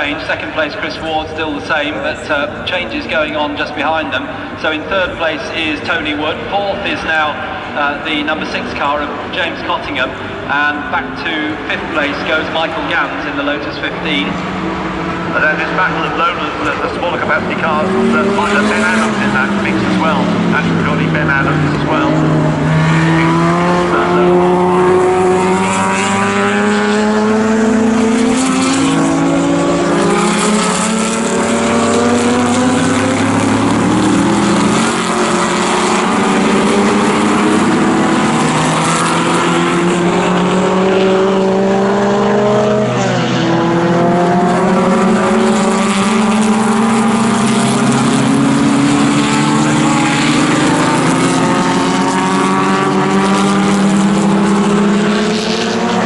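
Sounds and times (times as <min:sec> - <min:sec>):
racing car engines upshifting: 0:00.0 - 0:56.0.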